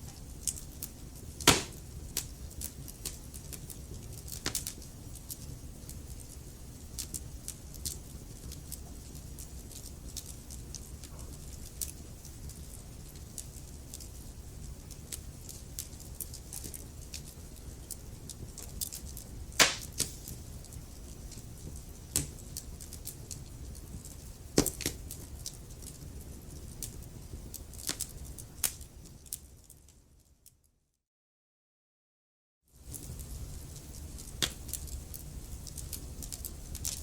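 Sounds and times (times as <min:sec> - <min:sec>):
wood fire crackling: 0:00.0 - 0:30.4, 0:32.8 - 0:37.0.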